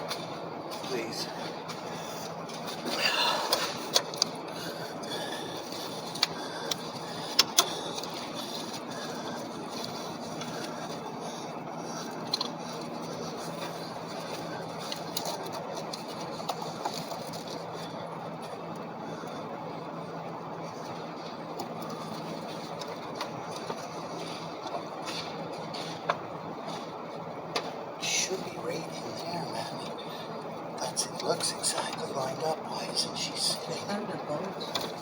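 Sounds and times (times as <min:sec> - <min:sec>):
steady background noise: 0:00.0 - 0:35.0
light clicks and knocks on engine: 0:01.5 - 0:19.5, 0:20.6 - 0:27.8.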